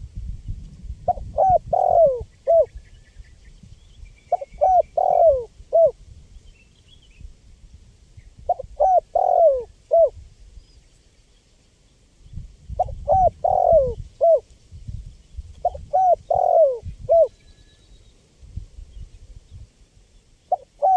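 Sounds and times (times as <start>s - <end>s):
dove cooing: 1.1s - 2.8s, 4.3s - 6.0s, 8.5s - 10.2s, 12.8s - 14.4s, 15.6s - 17.4s, 20.5s - 20.9s
small birds chirping: 1.4s - 5.5s.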